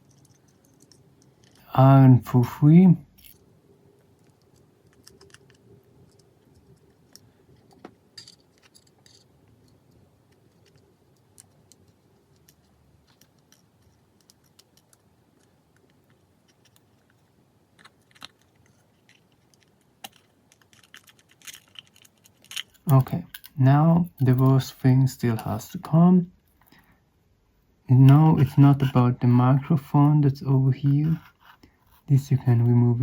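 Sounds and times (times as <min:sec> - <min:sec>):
small tools clicking on phone parts: 0:04.1 - 0:17.2, 0:17.8 - 0:23.6.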